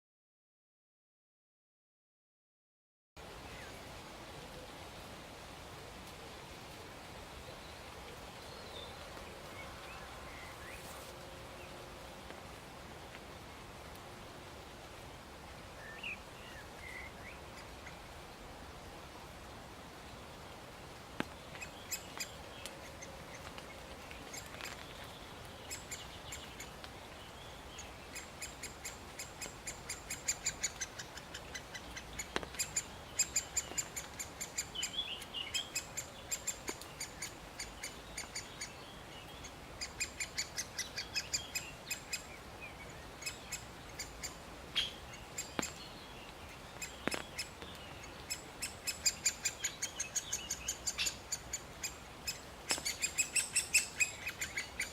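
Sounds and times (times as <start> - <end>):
woodpecker rapid high calls: 27.8 - 38.8, 39.4 - 46.0, 46.8 - 54.9.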